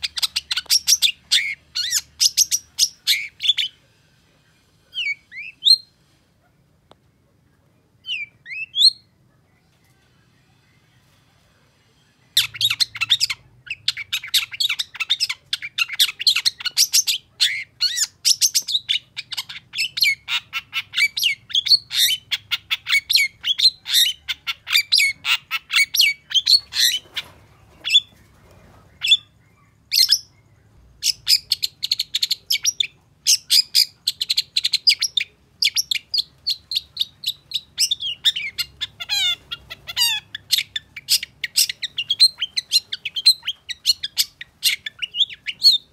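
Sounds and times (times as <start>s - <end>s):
bird singing high chirps: 12.4s - 45.9s.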